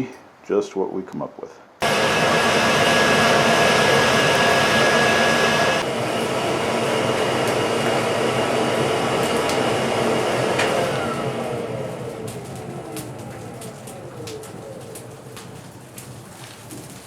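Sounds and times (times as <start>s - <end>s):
electric air blower running: 1.8s - 13.7s.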